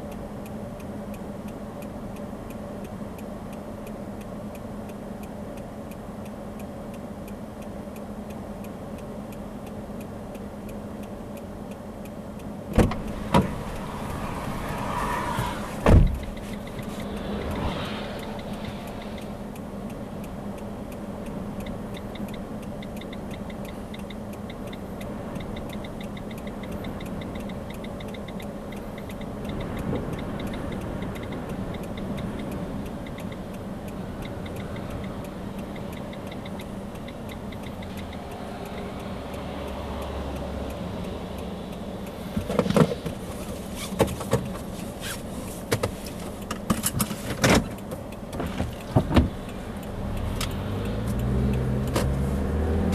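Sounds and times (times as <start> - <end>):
car engine hum: 0.0 - 52.9
sharp clicks and knocks: 12.7 - 19.4, 42.3 - 52.2
rapid regular ticking: 16.2 - 42.4, 47.7 - 51.9.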